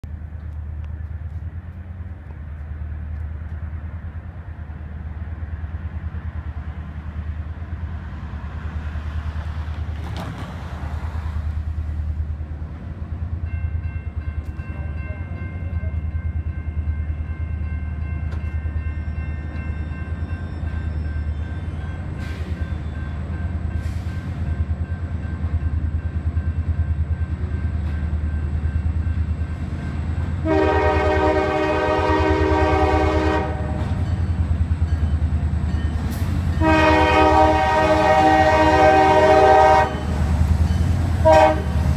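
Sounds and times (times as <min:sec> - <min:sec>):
diesel freight train rumbling: 0:00.0 - 0:41.9
crossing warning bell ringing: 0:13.4 - 0:41.8.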